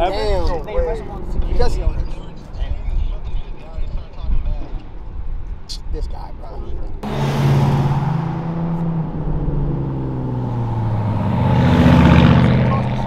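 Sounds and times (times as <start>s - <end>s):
sports cars driving past: 7.0s - 13.0s.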